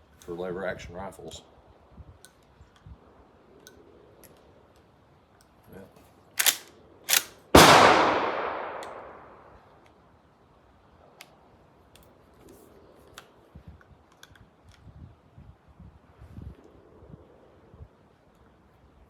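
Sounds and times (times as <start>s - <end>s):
cartridges clicking into rifle: 6.4s - 10.0s
gunshot ringing out: 7.6s - 9.4s.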